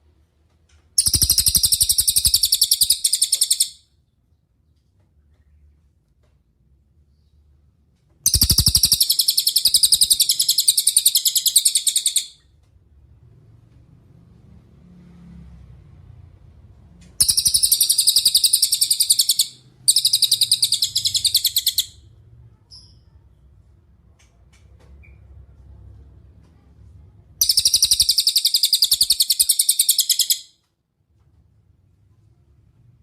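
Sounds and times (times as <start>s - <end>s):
high-pitched bird trills: 1.0s - 3.8s, 8.3s - 12.4s, 17.2s - 22.0s, 27.4s - 30.5s.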